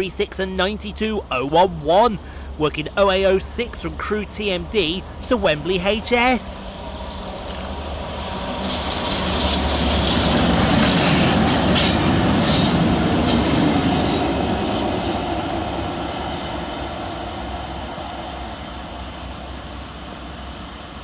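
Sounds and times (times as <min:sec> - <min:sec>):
diesel locomotive engine: 0:00.0 - 0:21.0
wheels clicking over rails: 0:06.0 - 0:18.0.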